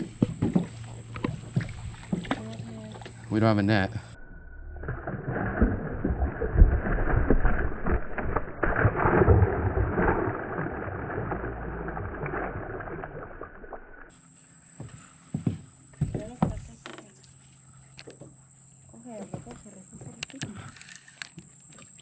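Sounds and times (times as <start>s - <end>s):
muffled water sloshing: 0.0s - 14.2s, 16.0s - 18.4s
irregular knocks: 15.4s - 17.1s.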